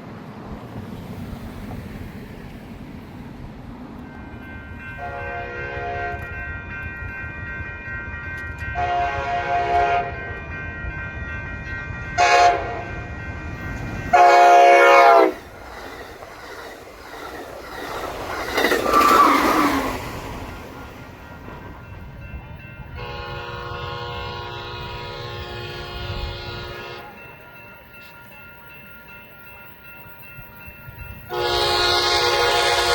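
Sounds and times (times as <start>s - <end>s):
train air horn blasts: 5.0s - 6.3s, 8.8s - 10.2s, 12.2s - 12.9s, 14.1s - 15.5s, 22.9s - 27.2s, 31.3s - 32.9s.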